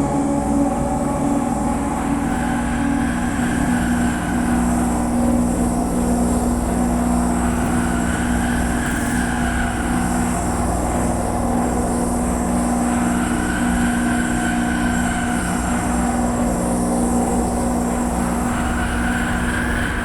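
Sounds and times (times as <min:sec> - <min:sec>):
steady low drone: 0:00.0 - 0:08.8.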